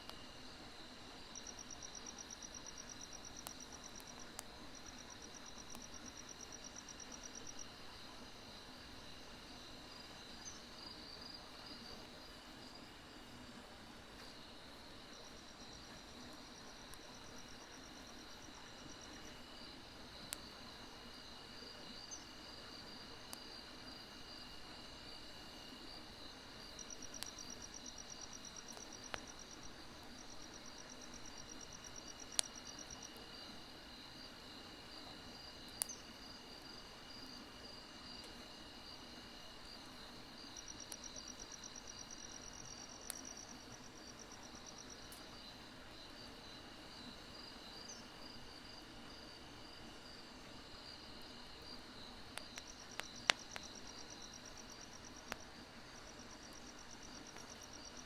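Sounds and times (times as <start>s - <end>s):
insects chirping: 0.1s - 58.0s
firewood popping in fire: 31.0s - 32.6s, 52.1s - 55.6s.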